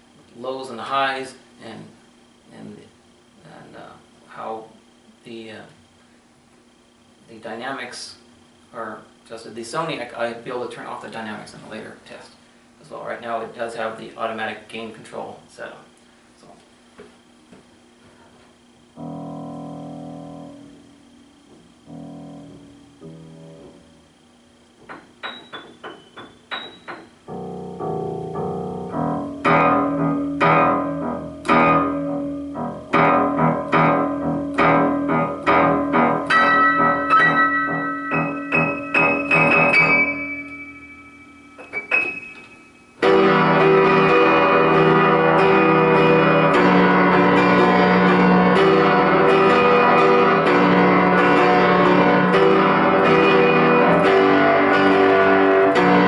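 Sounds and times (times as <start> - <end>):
piano-type keyboard music: 19.0 - 21.1, 21.7 - 24.1, 25.0 - 56.0.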